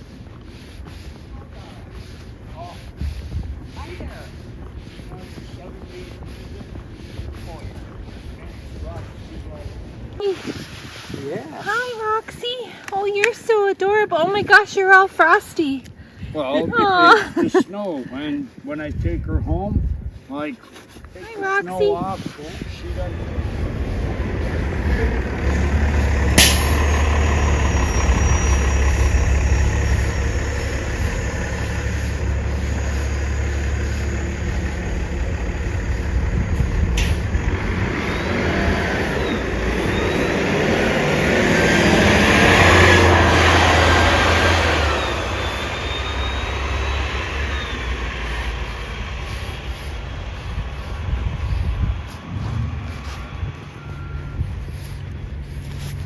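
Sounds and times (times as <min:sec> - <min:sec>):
passing traffic road noise: 0:00.0 - 0:18.9, 0:21.1 - 0:56.0
heavy vehicle engine running: 0:22.8 - 0:56.0.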